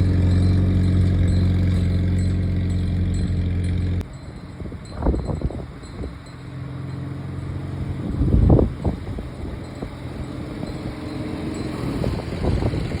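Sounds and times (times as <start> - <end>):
jeep engine running: 0.0 - 13.0.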